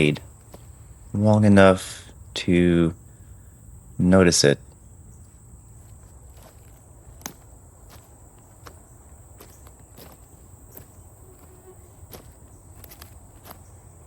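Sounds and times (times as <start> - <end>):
footsteps on gravel and wood: 0.4 - 0.9, 5.2 - 14.0
high-pitched insect trill: 2.1 - 14.0.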